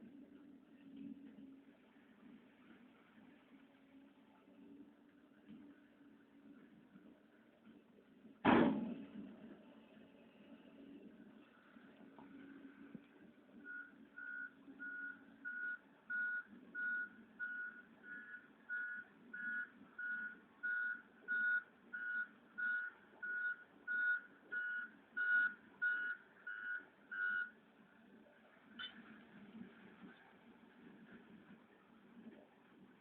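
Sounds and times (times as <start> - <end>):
diesel engine humming: 0.0 - 33.0
backup alarm beeping: 13.6 - 27.6.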